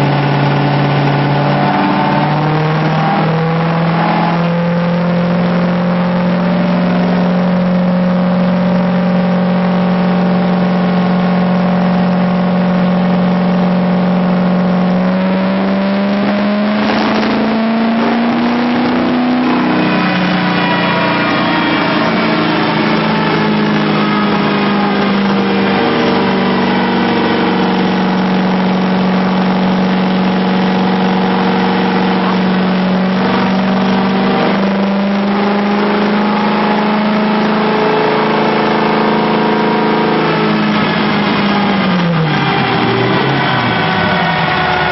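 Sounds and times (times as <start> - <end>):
engine running: 0.0 - 44.9.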